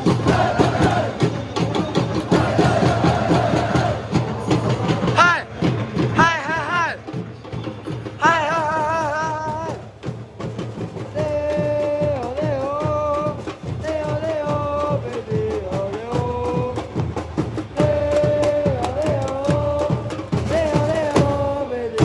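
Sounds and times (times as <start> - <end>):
crowd chanting in unison: 0.0 - 7.2, 8.1 - 22.0
drum beats: 0.0 - 22.0.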